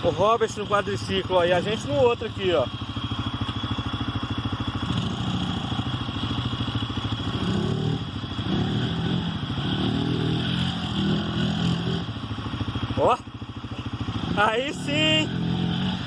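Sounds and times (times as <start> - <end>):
quad bike engine revving: 0.0 - 16.0.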